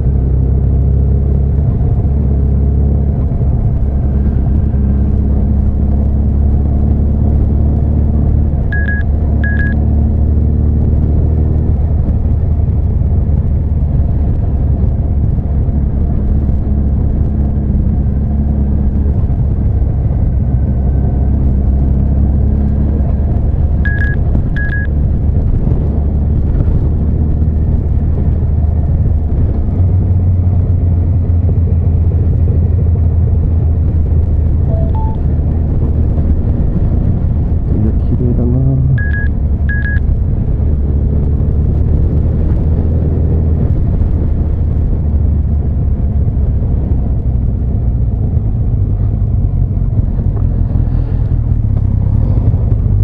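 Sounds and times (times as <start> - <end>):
heavy low rumble: 0.0 - 53.0
short high beeps: 8.7 - 9.8, 23.9 - 24.9, 34.7 - 35.2, 38.9 - 40.0.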